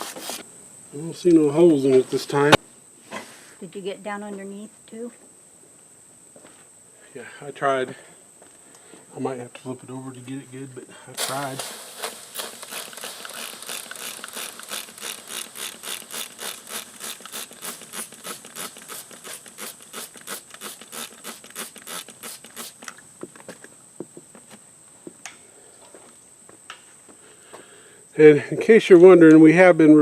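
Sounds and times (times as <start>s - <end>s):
rhythmic scraping: 11.2s - 22.8s
high insect buzz: 11.2s - 28.2s
scattered clicks: 12.4s - 22.2s.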